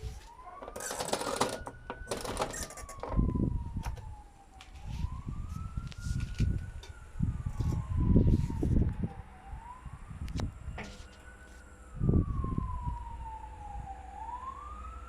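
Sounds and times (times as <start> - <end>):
washing machine motor whine: 0.0 - 4.0.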